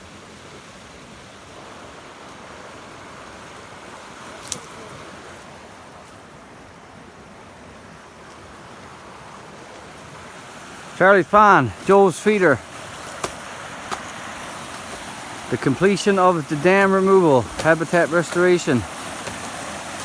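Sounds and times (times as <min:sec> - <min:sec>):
fast-flowing stream rushing: 0:00.0 - 0:20.0.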